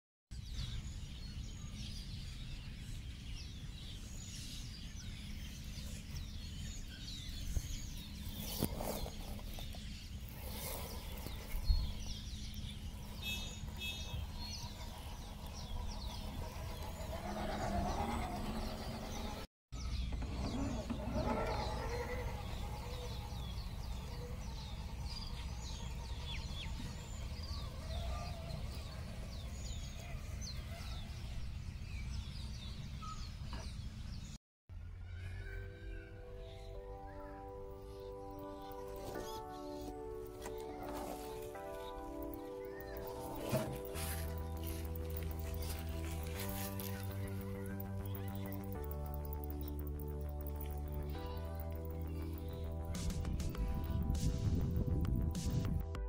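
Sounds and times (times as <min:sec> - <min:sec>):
birds chirping and singing: 0:00.4 - 0:34.4, 0:35.1 - 0:55.8.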